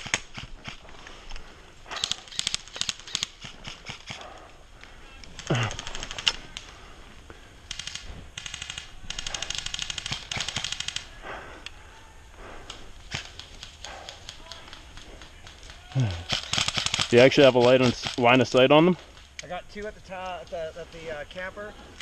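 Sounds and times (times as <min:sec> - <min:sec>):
airsoft guns firing bursts: 0:01.9 - 0:04.5, 0:05.3 - 0:06.7, 0:07.6 - 0:11.4, 0:12.6 - 0:19.3.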